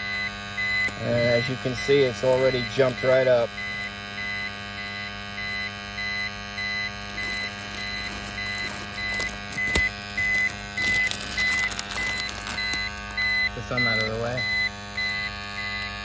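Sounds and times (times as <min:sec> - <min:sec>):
meter beeping: 0:00.0 - 0:16.0
rustling: 0:06.9 - 0:13.2.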